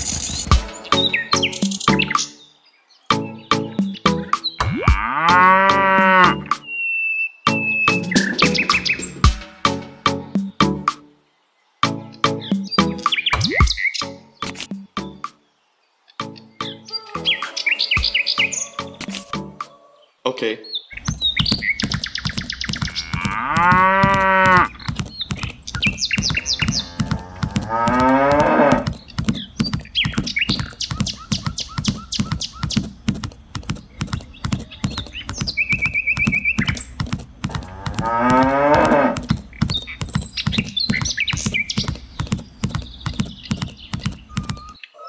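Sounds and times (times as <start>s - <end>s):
cattle mooing: 4.8s - 6.5s, 22.8s - 24.9s, 26.2s - 29.0s, 37.5s - 39.4s
short bird chirps: 6.6s - 9.2s, 16.6s - 19.2s
steady rapid ticking: 21.0s - 44.8s.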